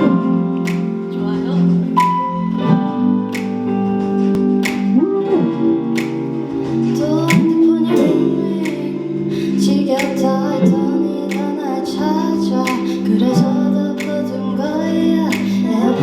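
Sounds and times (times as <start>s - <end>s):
woman singing: 6.8s - 16.0s.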